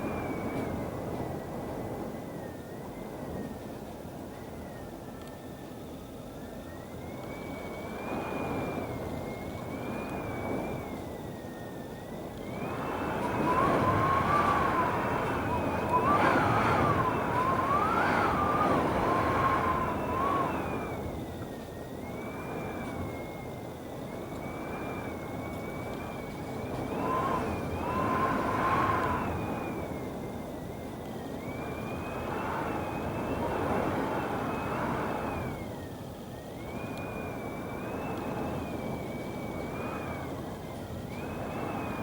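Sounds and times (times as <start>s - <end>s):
thin wind whistle: 0.0s - 42.0s
gusting wind rushing: 12.1s - 42.0s.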